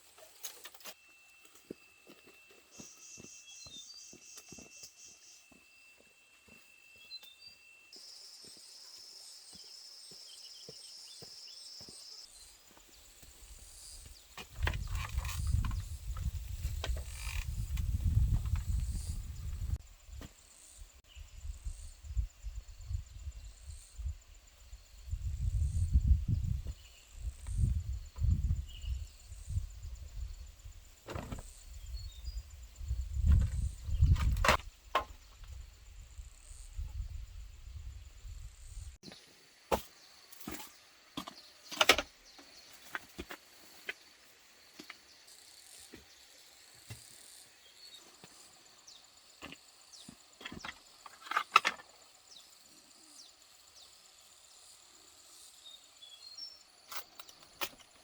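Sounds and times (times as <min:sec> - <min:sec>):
high hum of insects: 0:00.0 - 0:58.0
wind rumble on microphone: 0:14.5 - 0:20.2, 0:21.1 - 0:39.0.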